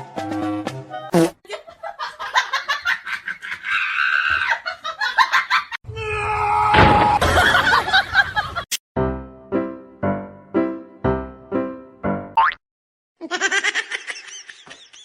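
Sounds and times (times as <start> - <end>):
people laughing and shrieking: 2.9 - 8.2.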